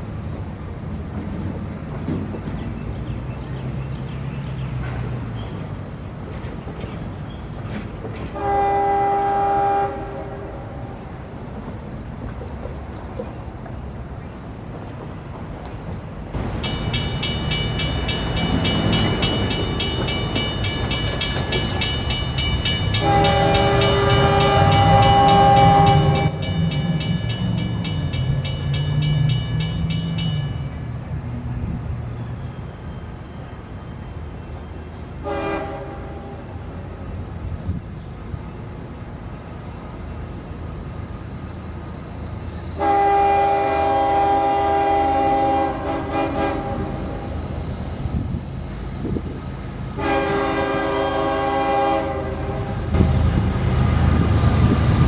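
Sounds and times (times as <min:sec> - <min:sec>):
rumble of passing locomotives: 0:00.0 - 0:55.0
locomotive horn: 0:08.3 - 0:11.0, 0:22.9 - 0:26.5, 0:35.2 - 0:36.6, 0:42.8 - 0:47.4, 0:49.9 - 0:53.2.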